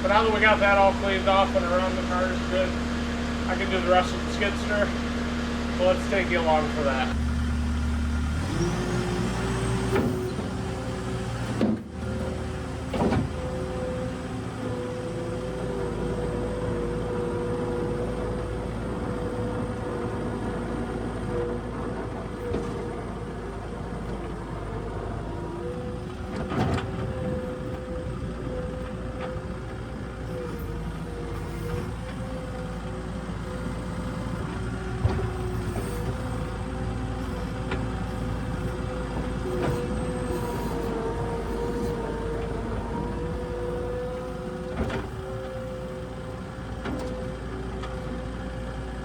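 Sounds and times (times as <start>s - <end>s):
diesel engine and hydraulics whining: 0.0s - 49.0s
short clunks: 8.4s - 14.1s, 21.2s - 48.2s.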